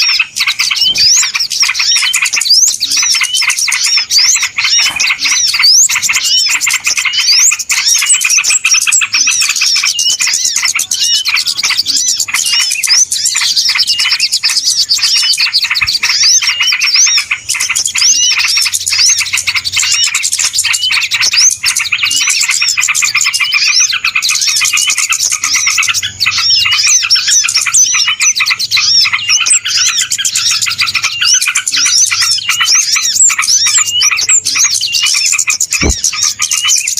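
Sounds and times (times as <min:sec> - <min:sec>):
chorus of small birds chirping: 0:00.0 - 0:36.9.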